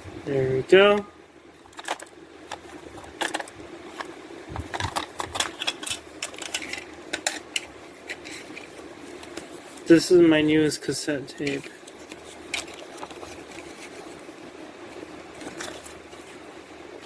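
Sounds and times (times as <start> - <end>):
faint steady hum: 0.0 - 17.0
plastic clicks and crinkles: 1.6 - 9.9, 11.4 - 14.3, 14.9 - 16.4.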